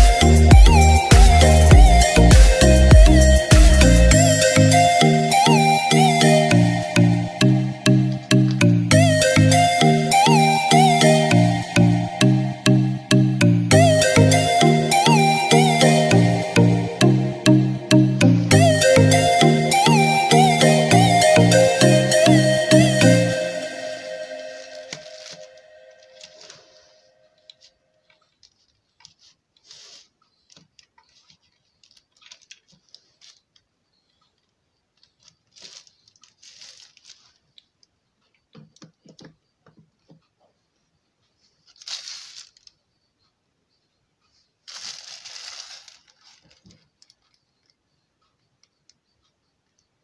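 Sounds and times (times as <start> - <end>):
short rustling bursts: 44.6 - 46.9.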